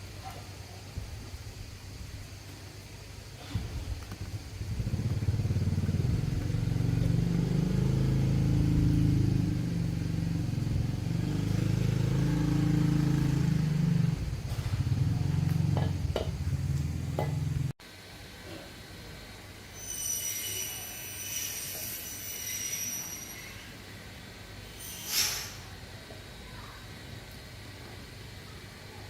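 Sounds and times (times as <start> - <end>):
small engine revving: 3.5 - 17.7.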